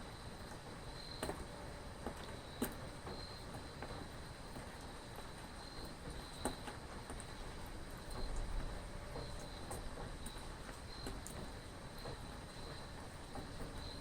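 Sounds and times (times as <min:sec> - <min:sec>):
rain falling: 0:00.0 - 0:14.0
water drips: 0:02.2 - 0:14.0
cricket trilling: 0:08.0 - 0:14.0.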